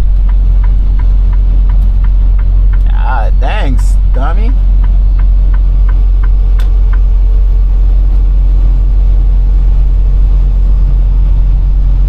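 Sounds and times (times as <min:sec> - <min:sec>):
turn signal ticking: 0:00.0 - 0:07.2
truck engine rumbling: 0:00.0 - 0:12.0.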